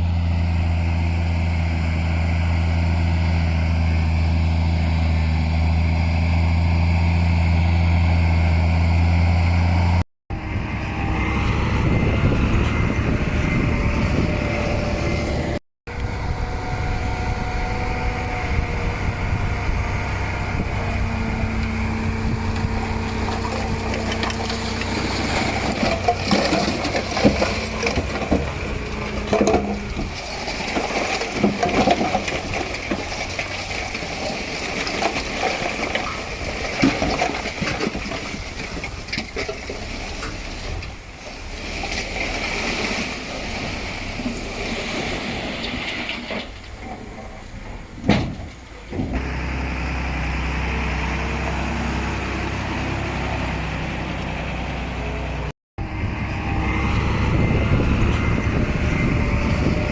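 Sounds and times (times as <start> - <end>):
heavy diesel machinery engine: 0.0 - 59.9
rattling and knocks: 20.6 - 41.0.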